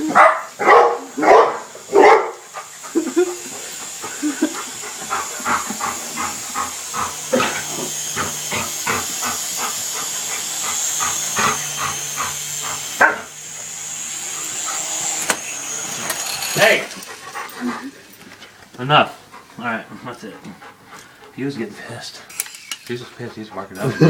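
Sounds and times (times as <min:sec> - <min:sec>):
dog barking: 0:00.1 - 0:02.4, 0:13.0 - 0:13.3.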